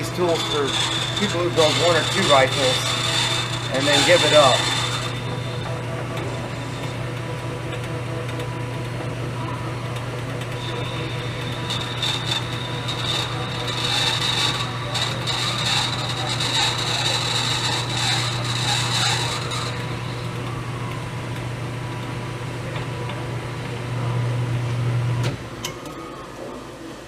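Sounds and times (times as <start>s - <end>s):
tool cutting brass with ringing tone: 0.0s - 7.2s, 10.6s - 20.1s
lathe motor humming: 0.0s - 25.2s.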